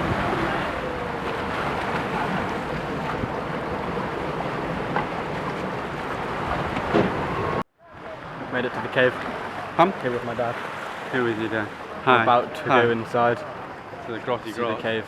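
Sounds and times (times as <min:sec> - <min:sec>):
wind buffeting microphone: 0:00.0 - 0:07.6
wind and water rushing: 0:00.0 - 0:15.0.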